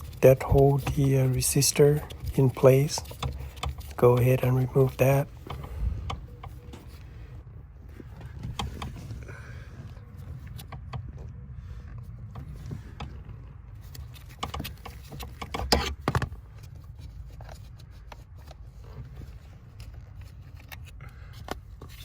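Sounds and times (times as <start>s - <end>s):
metal clicks and scrapes: 0.0s - 7.0s, 12.4s - 22.0s.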